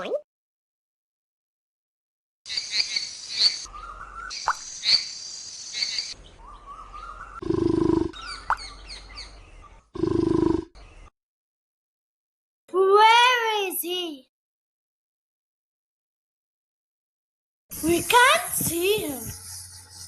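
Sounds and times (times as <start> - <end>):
insect noise: 2.5 - 6.2, 17.7 - 20.0
birds chirping and calling: 2.5 - 11.1, 17.7 - 20.0.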